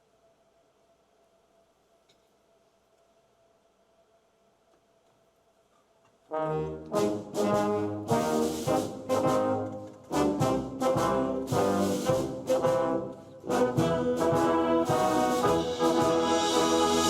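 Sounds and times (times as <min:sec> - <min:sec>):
concert band brass chords: 0:06.3 - 0:17.0.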